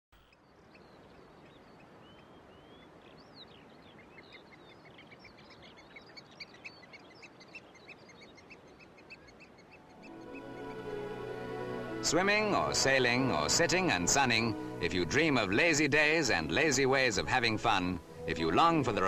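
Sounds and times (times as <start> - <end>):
steady background hiss: 0.2 - 19.0
small birds chirping and whistling: 0.3 - 11.0.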